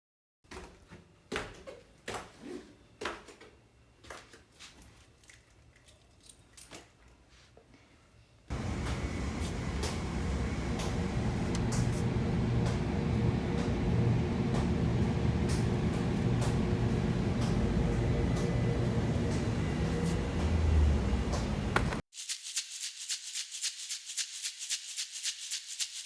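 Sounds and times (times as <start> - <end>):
low rumble with hum: 8.5 - 22.0.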